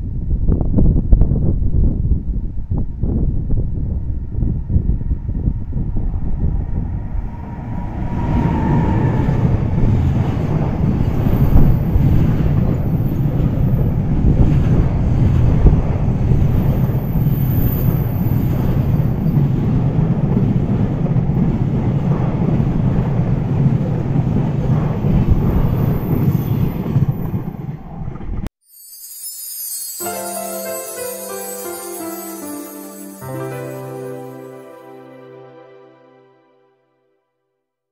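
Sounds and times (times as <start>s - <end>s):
freight train wheels rumbling on rails: 4.9s - 28.4s.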